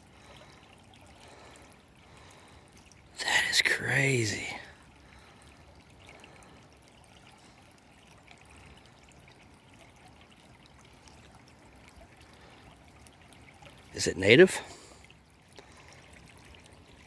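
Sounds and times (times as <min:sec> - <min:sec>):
creek water trickling: 0:00.0 - 0:17.0.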